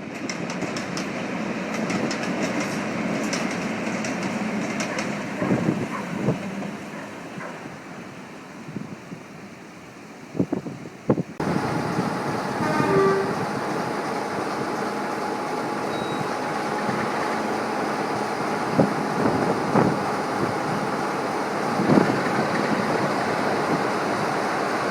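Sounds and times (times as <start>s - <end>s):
locomotive running: 0.0s - 8.8s, 11.0s - 24.9s
wind noise on microphone: 5.2s - 15.0s, 15.8s - 24.9s
train horn toot: 12.3s - 14.3s.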